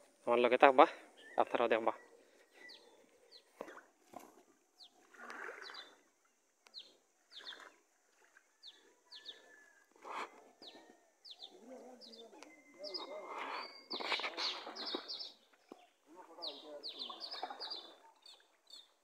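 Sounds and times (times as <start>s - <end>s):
small birds chirping: 0.6s - 3.8s, 4.8s - 5.0s, 5.6s - 6.0s, 6.6s - 7.8s, 8.6s - 9.7s, 10.5s - 19.0s.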